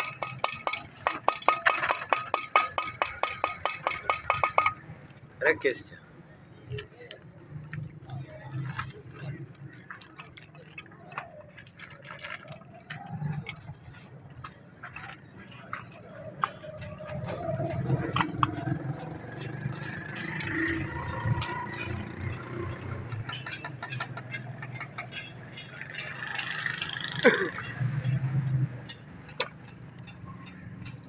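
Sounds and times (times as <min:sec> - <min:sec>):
metal tools clinking and scraping: 0:00.0 - 0:05.0, 0:08.5 - 0:31.0
indistinct voices: 0:06.6 - 0:31.0.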